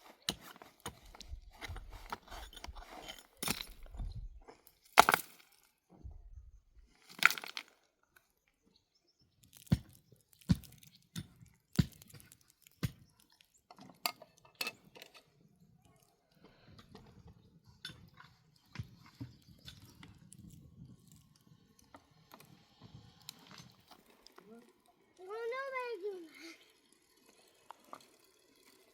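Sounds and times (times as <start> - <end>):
rustling and scraping: 0.0 - 7.8.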